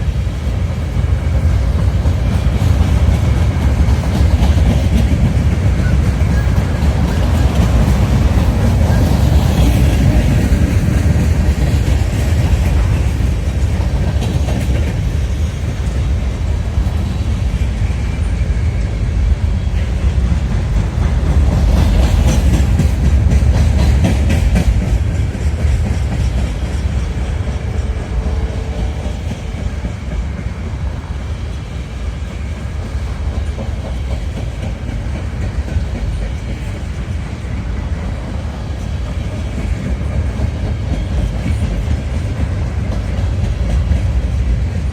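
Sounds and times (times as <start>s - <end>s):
freight train cars rumbling: 0.0s - 44.9s
wheels clacking over rail joints: 0.0s - 44.9s.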